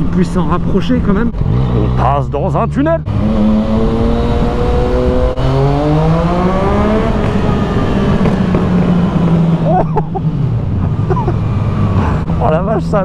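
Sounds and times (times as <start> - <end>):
motorcycle engine accelerating in tunnel: 0.0 - 12.4.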